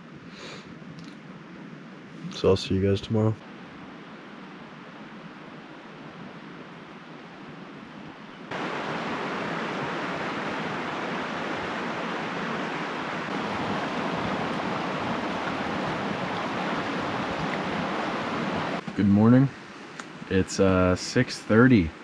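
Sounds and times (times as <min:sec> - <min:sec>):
heavy rain pouring: 0:08.5 - 0:18.8.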